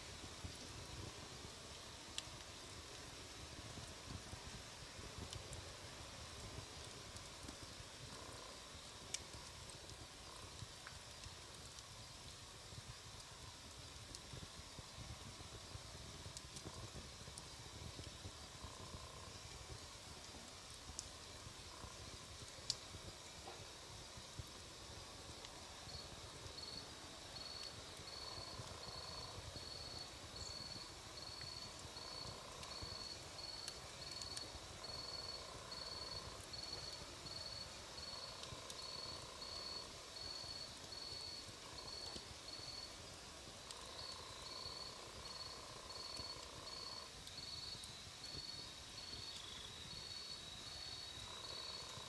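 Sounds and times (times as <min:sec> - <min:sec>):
campfire crackling: 0:00.0 - 0:52.0
insect chirping: 0:25.8 - 0:52.0.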